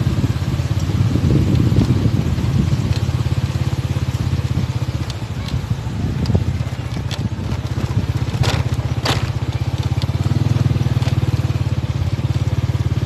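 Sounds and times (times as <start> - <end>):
motorcycle engine running: 0.0 - 13.0
short scraping crackles: 5.0 - 10.3.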